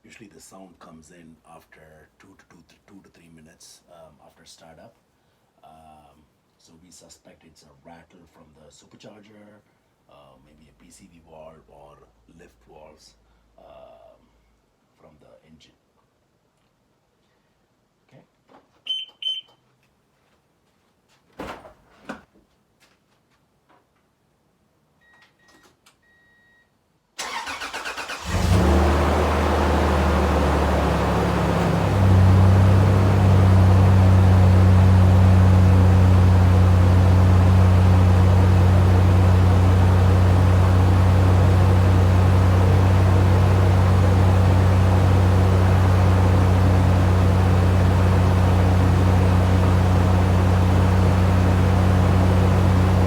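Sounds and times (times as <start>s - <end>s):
engine starter cranking: 27.2s - 34.8s
engine fast idle: 27.2s - 53.0s.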